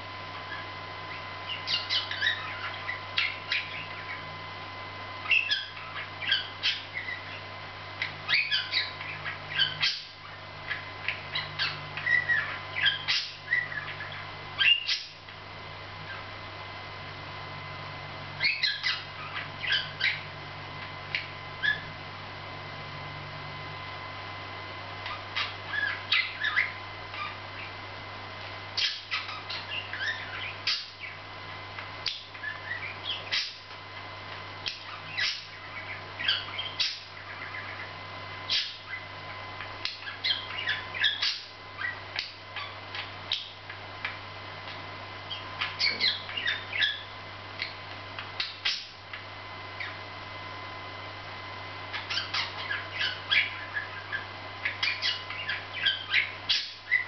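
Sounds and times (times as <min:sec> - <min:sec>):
budgerigars chirping: 0:00.5 - 0:04.3, 0:05.2 - 0:07.4, 0:08.0 - 0:15.2, 0:18.4 - 0:20.3, 0:21.1 - 0:21.9, 0:25.0 - 0:27.8, 0:28.8 - 0:31.2, 0:32.0 - 0:33.7, 0:34.6 - 0:37.9, 0:38.5 - 0:39.1, 0:39.8 - 0:43.6, 0:45.3 - 0:47.8, 0:48.4 - 0:49.0, 0:51.9 - 0:57.0.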